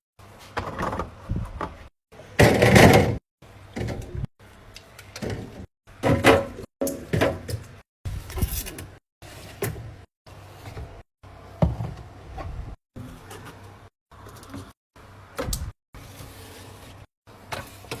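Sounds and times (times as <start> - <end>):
plastic bins clunking: 2.4 - 4.1, 5.2 - 7.8.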